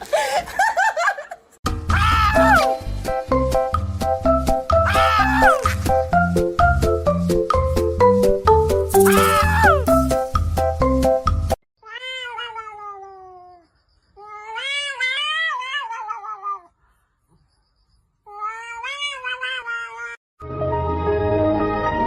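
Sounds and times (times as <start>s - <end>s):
cat meowing: 1.9s - 2.7s, 4.8s - 5.8s, 9.0s - 9.8s, 11.8s - 13.6s, 14.2s - 16.8s, 18.3s - 20.2s.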